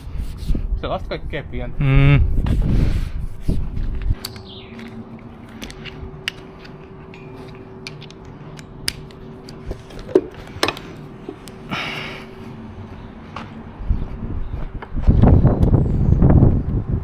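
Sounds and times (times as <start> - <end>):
faint steady hum: 0.0 - 17.0
small parts clicking and tapping: 4.0 - 11.6.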